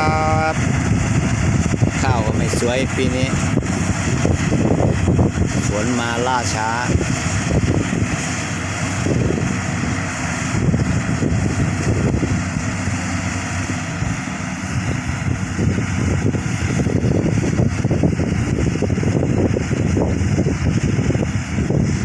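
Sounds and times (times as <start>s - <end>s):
combine harvester engine running: 0.0s - 22.0s.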